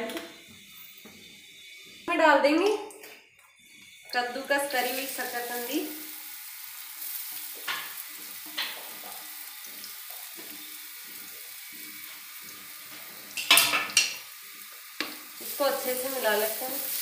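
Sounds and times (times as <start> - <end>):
ghee sizzling in pan: 3.6 - 17.0.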